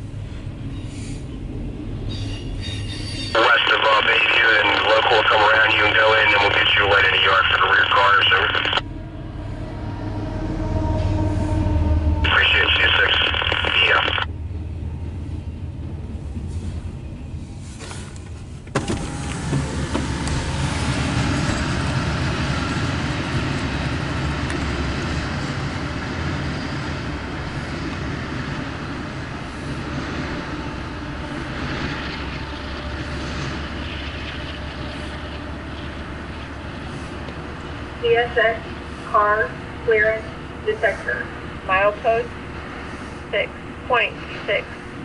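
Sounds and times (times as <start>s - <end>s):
freight train rolling past: 0.0s - 3.6s, 5.6s - 13.5s, 14.2s - 45.0s.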